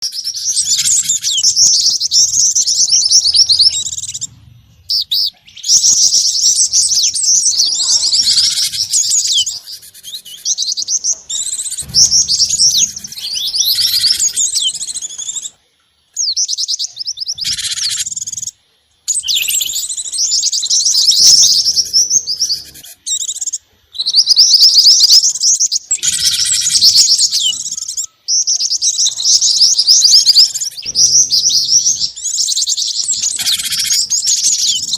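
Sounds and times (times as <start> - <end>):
high-pitched bird chirps and twitters: 0.0 - 34.9.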